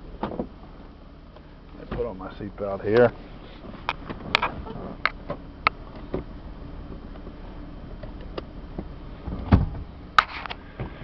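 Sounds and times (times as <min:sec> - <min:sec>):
low steady background noise: 0:00.0 - 0:11.0
dull thump: 0:08.8 - 0:11.0.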